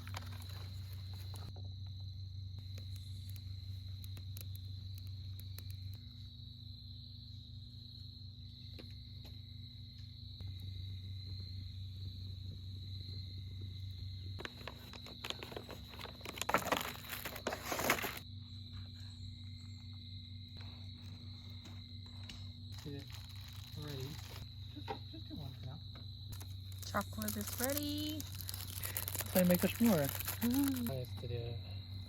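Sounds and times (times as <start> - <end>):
crickets trilling: 0.0 - 32.0
rustling and crackling: 14.4 - 18.2, 22.7 - 24.5, 26.3 - 31.0.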